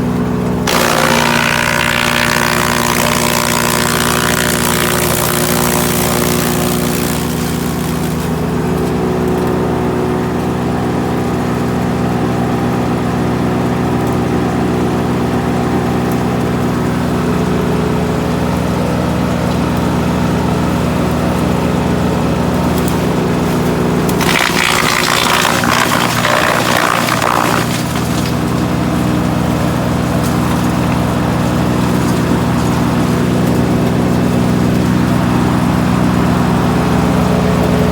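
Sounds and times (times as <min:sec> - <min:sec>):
wood chipper running: 0:00.0 - 0:37.9
harsh rushing noise: 0:00.7 - 0:08.4, 0:24.2 - 0:28.6.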